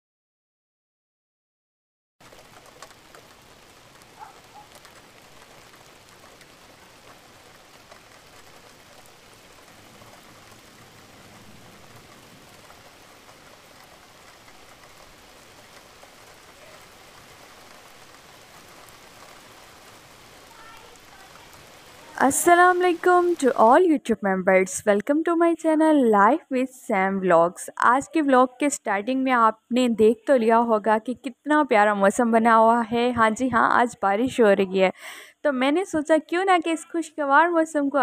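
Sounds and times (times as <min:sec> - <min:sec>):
raindrop taps: 0:02.2 - 0:23.2
steady rain hiss: 0:02.2 - 0:38.0.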